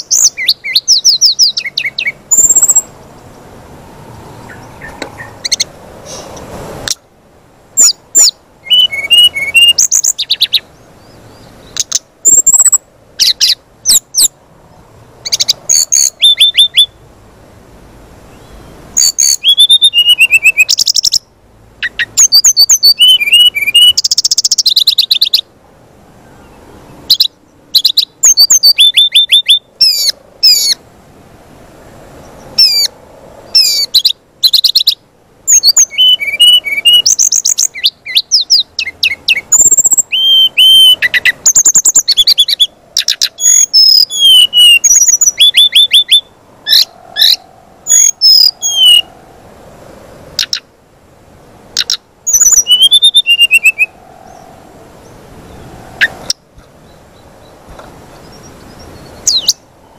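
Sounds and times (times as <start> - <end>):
bird chirping and whistling: 0.0 - 2.9, 7.8 - 10.6, 11.7 - 14.3, 15.3 - 17.0, 18.4 - 21.2, 21.8 - 25.4, 27.1 - 30.8, 32.6 - 32.9, 33.6 - 49.1, 50.4 - 50.6, 51.8 - 54.4, 58.3 - 59.6.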